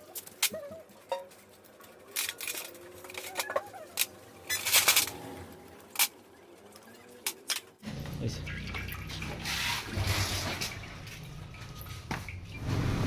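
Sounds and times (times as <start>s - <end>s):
metal tools and parts clinking: 0.1s - 6.2s.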